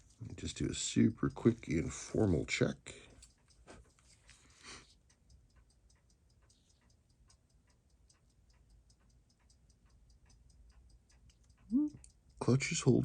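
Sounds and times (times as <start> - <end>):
watch ticking: 0.0 - 13.0
watch click: 5.0 - 12.4.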